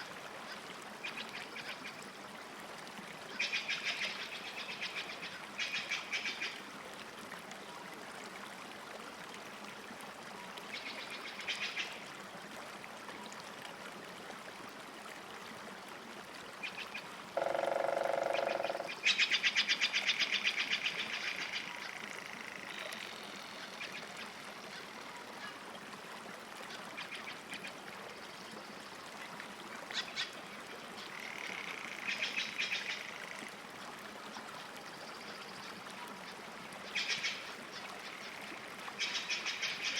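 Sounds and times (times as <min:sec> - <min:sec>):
lower steady bird call: 0:16.6 - 0:25.6, 0:31.0 - 0:33.4, 0:34.3 - 0:39.9.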